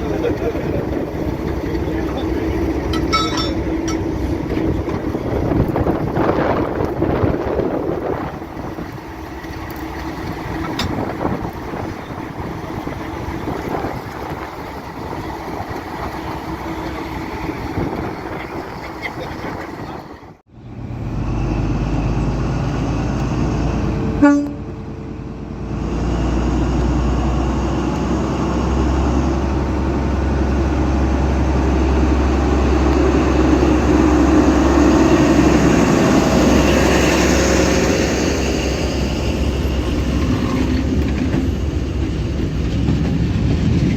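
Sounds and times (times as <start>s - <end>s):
diesel locomotive engine drone: 0.0s - 43.9s
wind on microphone: 0.2s - 9.4s, 10.1s - 20.3s
locomotive horn toot: 24.2s - 24.8s.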